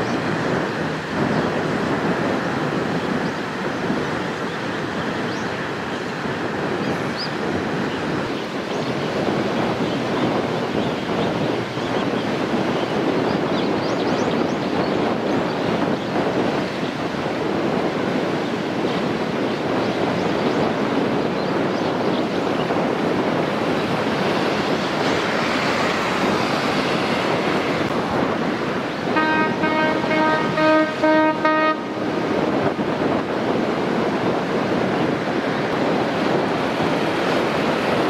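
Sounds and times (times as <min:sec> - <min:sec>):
strong wind on microphone: 0:00.0 - 0:38.0
horn tooting: 0:29.1 - 0:32.4.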